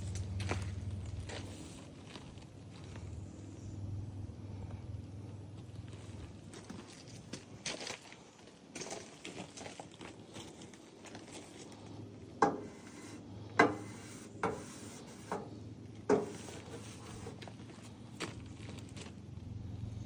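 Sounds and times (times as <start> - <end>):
sharp knocks on thin metal: 12.4 - 12.8, 13.6 - 14.7, 16.1 - 16.4
light ticks and scrapes: 12.4 - 15.5, 16.1 - 19.1.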